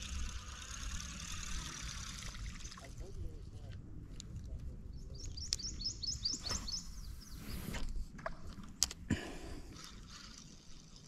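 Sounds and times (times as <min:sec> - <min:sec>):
small bird singing: 0:04.9 - 0:07.6.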